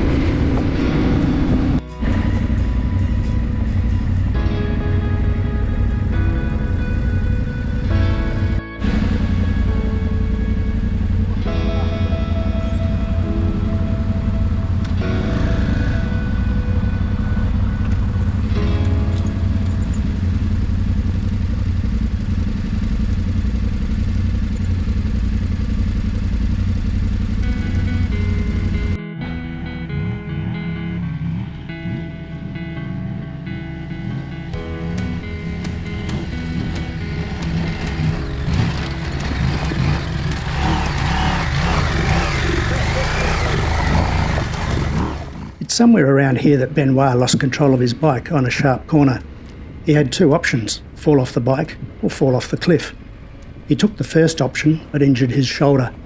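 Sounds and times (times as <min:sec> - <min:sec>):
wind rumble: 0:00.0 - 0:29.0
motorcycle engine: 0:00.0 - 0:49.8.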